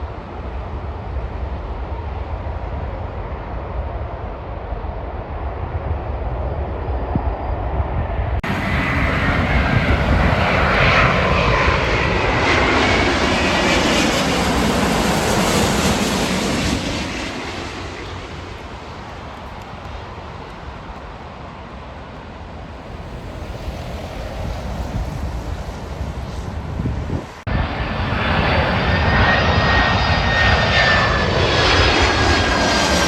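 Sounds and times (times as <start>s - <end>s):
jet airliner passing overhead: 0.0s - 33.0s.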